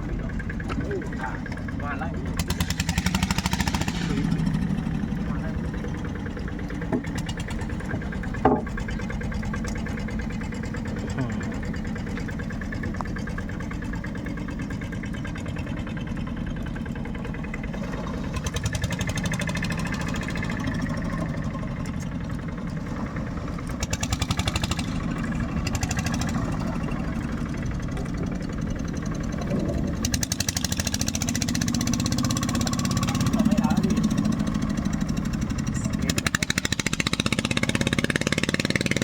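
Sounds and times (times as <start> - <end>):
boat engine running: 0.0 - 39.0.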